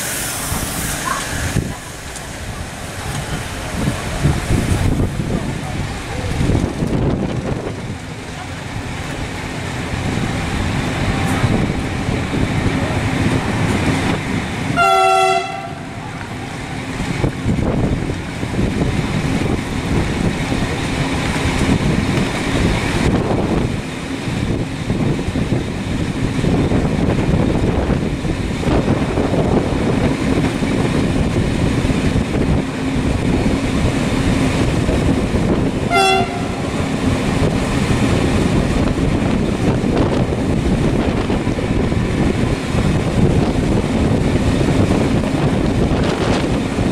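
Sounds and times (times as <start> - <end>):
vehicle rumbling: 0.0 - 46.9
short horn toots: 14.8 - 15.8, 35.9 - 36.6.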